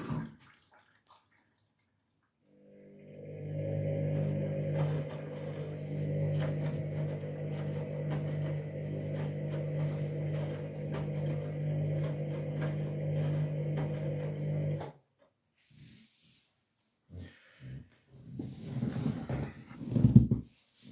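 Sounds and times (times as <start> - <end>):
washing machine humming: 2.5 - 14.9.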